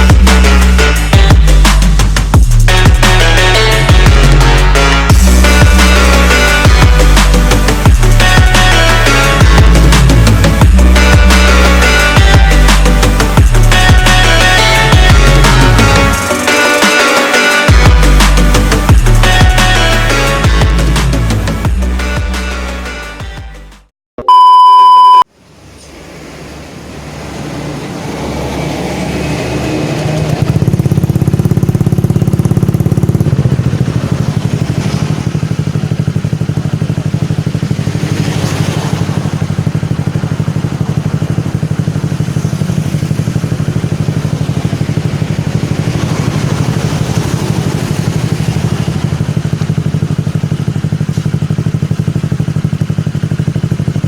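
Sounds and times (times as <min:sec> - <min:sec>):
scooter engine running: 0:00.0 - 0:22.5, 0:27.1 - 0:54.0
high electronic beep: 0:24.2 - 0:25.3.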